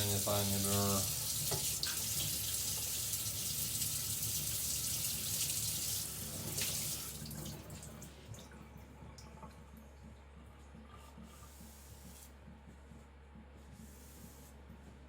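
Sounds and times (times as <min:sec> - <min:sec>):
water running from a tap: 0:00.0 - 0:08.6.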